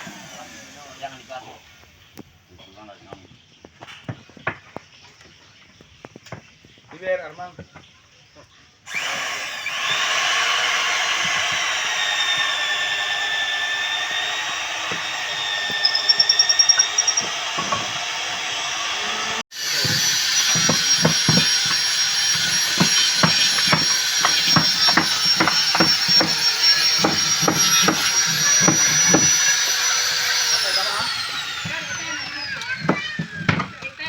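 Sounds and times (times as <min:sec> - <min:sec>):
steady machine whine: 0:08.9 - 0:33.4
irregular sharp knocks: 0:19.8 - 0:29.4.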